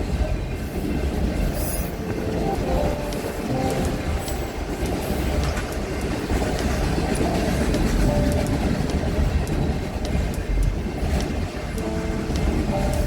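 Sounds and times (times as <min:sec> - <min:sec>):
train rumbling past: 0:00.0 - 0:13.0
wheels clicking on rails: 0:00.0 - 0:13.0.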